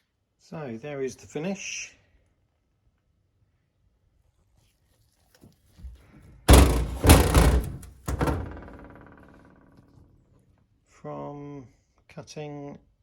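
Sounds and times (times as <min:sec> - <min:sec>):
heavy metal parts clanking: 0:06.5 - 0:08.9.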